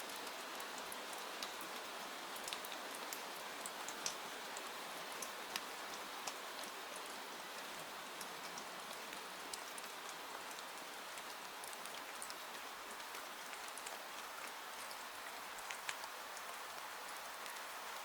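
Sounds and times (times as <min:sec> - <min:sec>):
raindrops ticking: 0:03.9 - 0:06.7.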